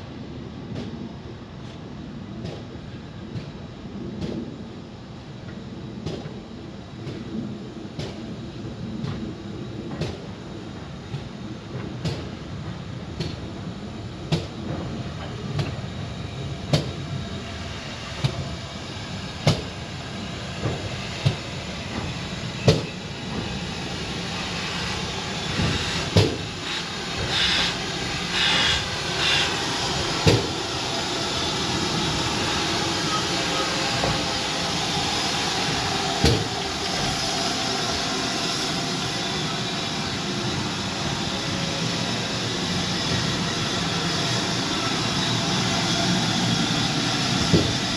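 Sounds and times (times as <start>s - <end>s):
train rushing noise: 0.0s - 47.9s
train wheels clacking: 11.1s - 13.5s, 14.3s - 15.8s, 19.4s - 19.9s, 20.5s - 23.6s, 24.2s - 47.9s.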